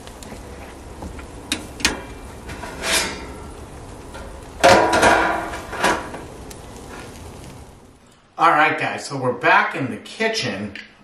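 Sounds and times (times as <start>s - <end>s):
metal grill lid clattering: 1.5s - 3.5s, 4.1s - 6.3s
grill lid knock: 4.6s - 6.2s.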